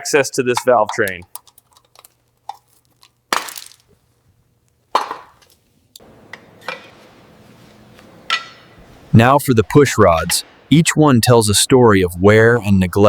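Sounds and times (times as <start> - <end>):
faint steady hiss: 0.0 - 13.0
tools clinking on metal: 0.5 - 3.1.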